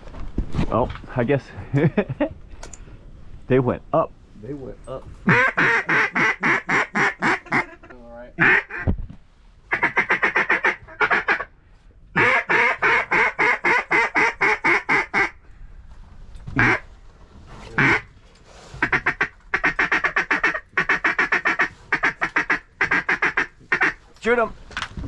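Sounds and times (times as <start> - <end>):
duck call quacks: 5.2 - 8.9, 9.7 - 11.5, 12.2 - 15.4, 16.6 - 16.8, 17.8 - 18.1, 18.8 - 24.0.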